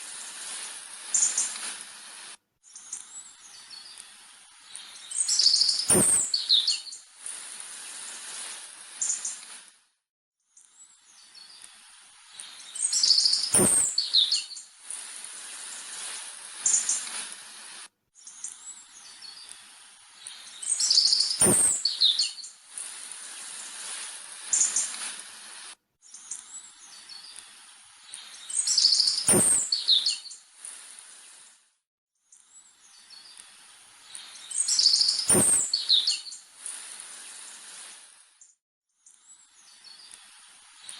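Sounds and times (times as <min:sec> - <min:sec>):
birds chirping: 0:02.8 - 0:07.0, 0:12.3 - 0:14.6, 0:20.2 - 0:22.5, 0:28.0 - 0:30.4, 0:34.0 - 0:36.4
sharp click: 0:05.8 - 0:06.4, 0:13.5 - 0:14.1, 0:21.4 - 0:21.9, 0:29.2 - 0:29.8, 0:35.1 - 0:35.8.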